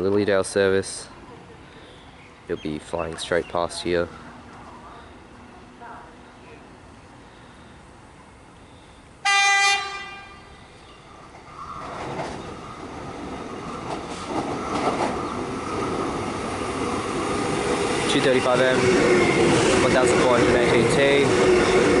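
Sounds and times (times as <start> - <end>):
high train whine: 4.1 - 22.0
train horn blast: 9.2 - 10.6
train wheel rumble and clatter: 11.3 - 22.0.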